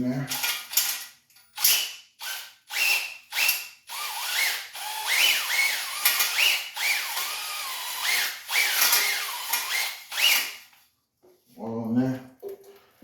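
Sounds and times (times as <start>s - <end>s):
electric drill whine: 2.2s - 10.6s.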